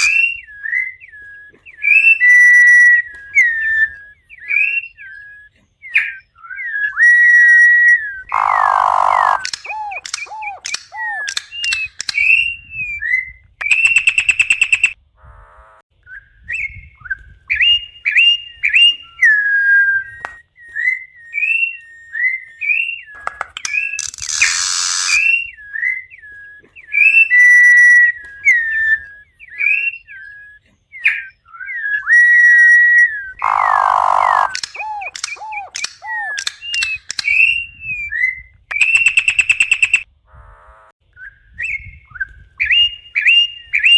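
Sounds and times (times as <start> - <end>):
bird singing whistled notes: 0.0 - 15.0, 16.0 - 40.1, 41.1 - 43.9.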